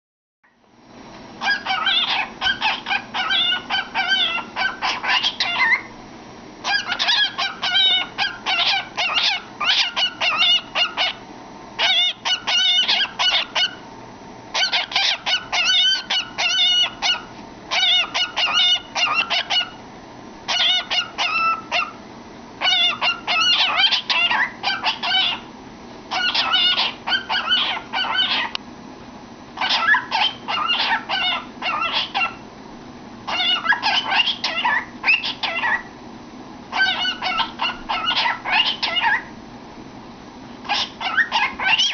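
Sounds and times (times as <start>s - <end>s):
cockatiel whistling and chirping: 1.4s - 5.9s, 6.6s - 11.2s, 11.8s - 13.8s, 14.5s - 19.8s, 20.5s - 22.0s, 22.6s - 25.5s, 26.1s - 28.5s, 29.6s - 32.4s, 33.3s - 35.9s, 36.7s - 39.3s, 40.6s - 41.9s.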